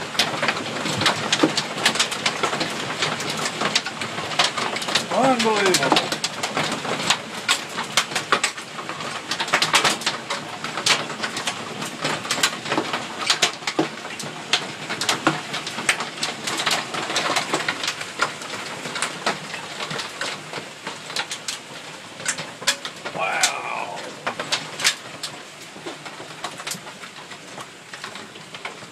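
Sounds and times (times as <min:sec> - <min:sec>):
hail rattling: 0:00.0 - 0:28.9
downpour hiss: 0:05.1 - 0:06.2, 0:23.0 - 0:24.4.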